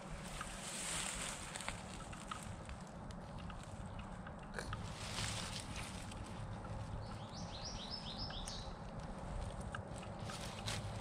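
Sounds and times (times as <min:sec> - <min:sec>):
steady low rumble: 0:00.0 - 0:11.0
soft clicks and rustles: 0:00.2 - 0:07.2, 0:08.4 - 0:11.0
songbird singing: 0:01.2 - 0:11.0.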